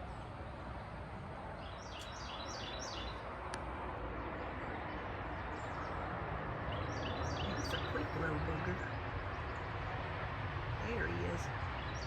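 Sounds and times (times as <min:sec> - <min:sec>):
low outdoor background rumble: 0:00.0 - 0:12.0
small bird chirping: 0:01.6 - 0:03.2, 0:06.7 - 0:08.8.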